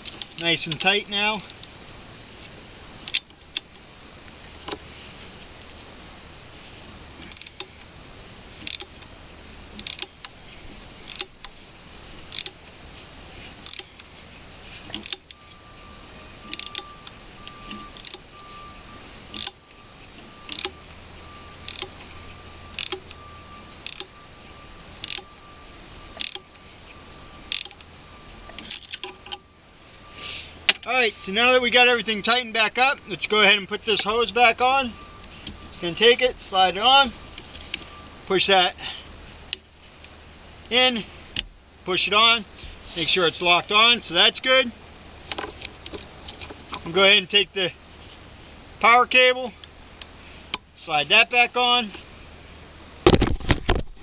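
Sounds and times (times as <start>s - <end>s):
thin steady tone: 0.0s - 53.3s
wrench clicking on nut: 11.1s - 11.3s, 13.6s - 13.9s, 14.9s - 15.3s, 19.3s - 19.6s, 23.8s - 24.1s, 26.2s - 26.4s.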